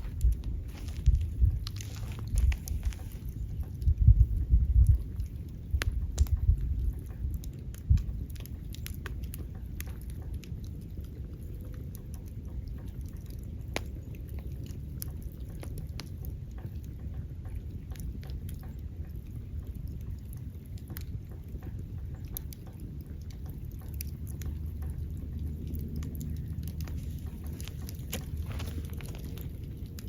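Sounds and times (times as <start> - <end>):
low steady rumble: 0.0 - 30.0
wood fire crackling and popping: 0.0 - 30.0.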